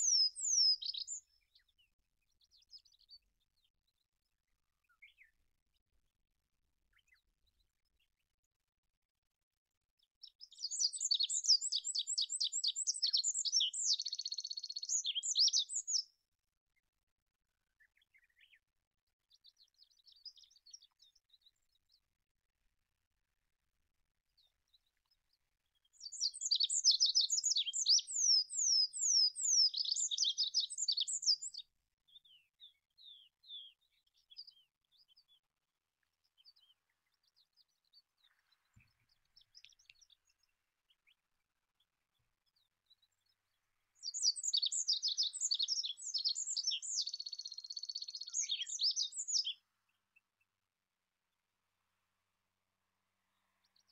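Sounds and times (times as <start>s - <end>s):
bird singing high trills: 0.0s - 1.2s, 26.0s - 31.6s, 44.0s - 49.6s.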